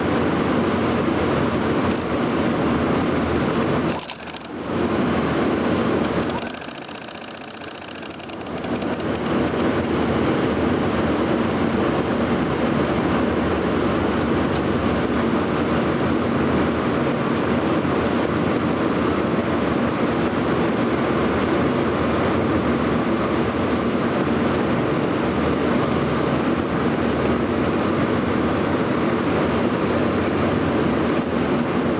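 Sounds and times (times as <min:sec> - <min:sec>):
sewing machine running: 0:03.9 - 0:04.6, 0:06.0 - 0:10.0.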